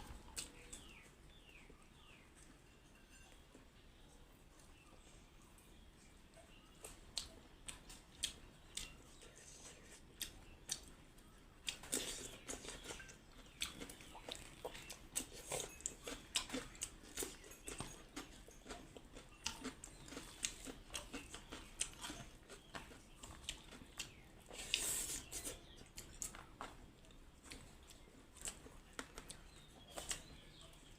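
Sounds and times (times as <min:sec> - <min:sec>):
chewing and mouth sounds: 0:06.3 - 0:30.9.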